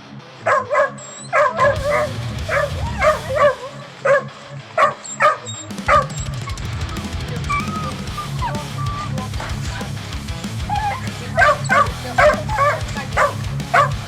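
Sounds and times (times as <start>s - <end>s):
background music: 0.0s - 14.0s
dog barking: 0.5s - 6.6s, 10.7s - 14.0s.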